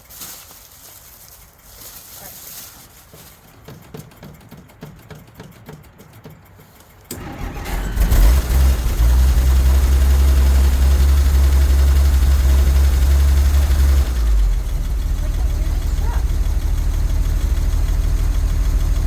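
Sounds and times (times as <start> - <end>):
engine starting and idling: 3.6 - 19.0.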